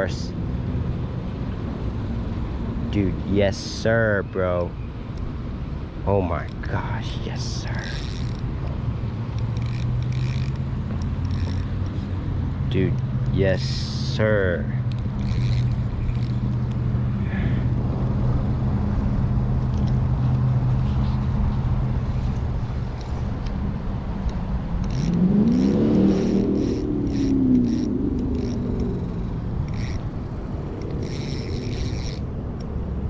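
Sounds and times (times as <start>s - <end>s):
motor engine humming: 4.6s - 17.2s, 24.7s - 33.0s.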